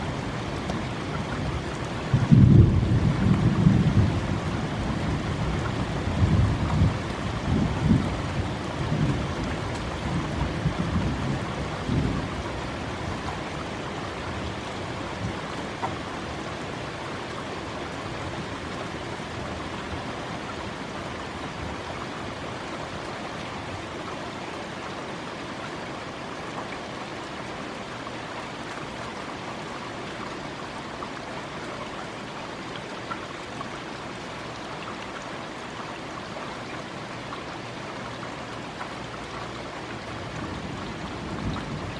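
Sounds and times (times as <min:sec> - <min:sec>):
steady rain: 0:00.0 - 0:41.9
raindrops clicking on microphone: 0:00.1 - 0:16.1
thunder rumble: 0:02.1 - 0:04.5, 0:40.3 - 0:41.9.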